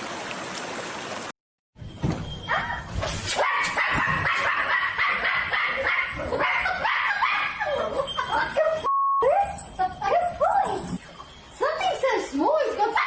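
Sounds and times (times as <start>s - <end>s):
dog yipping: 2.4s - 11.9s.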